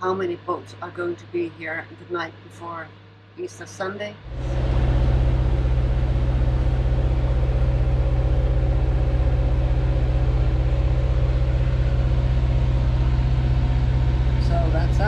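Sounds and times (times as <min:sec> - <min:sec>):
boat engine droning: 0:04.2 - 0:15.0.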